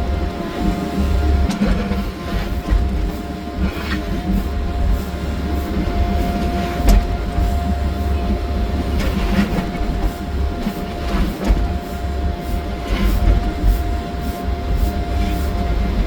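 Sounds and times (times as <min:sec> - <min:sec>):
excavator engine and hydraulics: 0:00.0 - 0:16.0.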